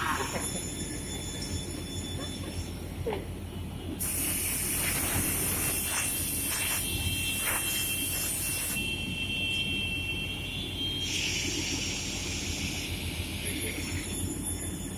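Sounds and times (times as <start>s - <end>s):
saw cutting hiss: 4.0s - 8.8s.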